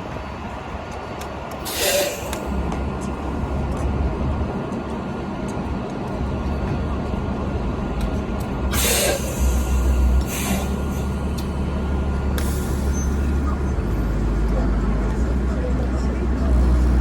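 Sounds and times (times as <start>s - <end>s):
bus engine droning: 0.0s - 17.0s
compressed air hisses: 1.7s - 2.4s, 8.8s - 10.8s.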